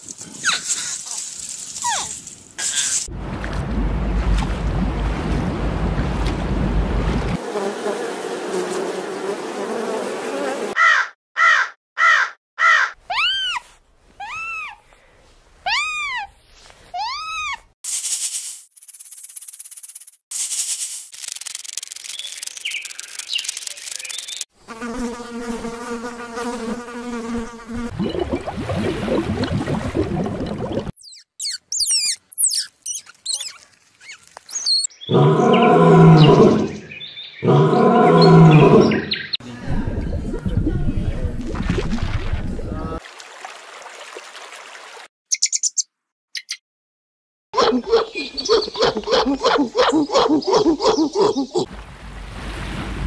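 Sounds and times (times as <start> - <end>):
insect buzzing: 7.4 - 10.8, 18.8 - 27.9
crow cawing: 10.8 - 13.0
squirrel squeaky chirps: 15.7 - 16.3, 31.0 - 34.9, 45.3 - 46.6.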